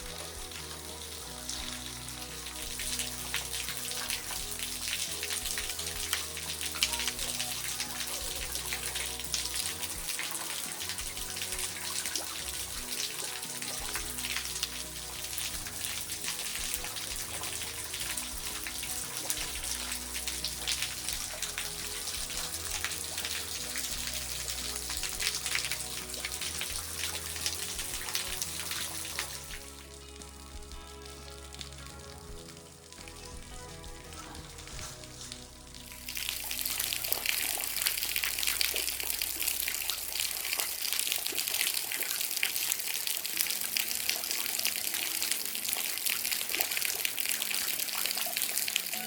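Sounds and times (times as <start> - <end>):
background music with held notes: 0.0 - 49.0
waterfall splashing onto rock: 0.0 - 49.0.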